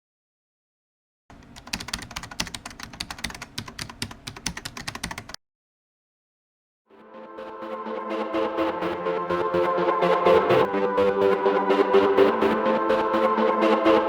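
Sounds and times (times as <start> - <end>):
rapid keyboard typing: 1.3 - 5.4.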